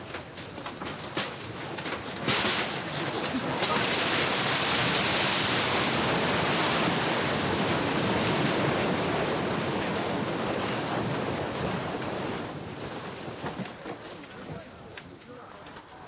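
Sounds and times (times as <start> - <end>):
loud steady rushing noise: 2.4 - 13.6.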